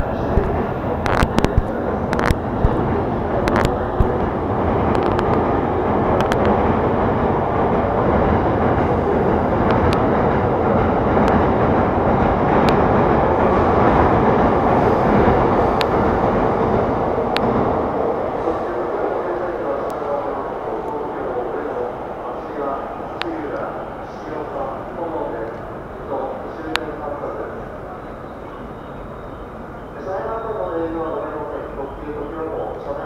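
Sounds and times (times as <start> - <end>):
electric train rumble: 0.0 - 33.0
sharp clicks and knocks: 0.3 - 4.3, 4.9 - 5.5, 6.2 - 6.6.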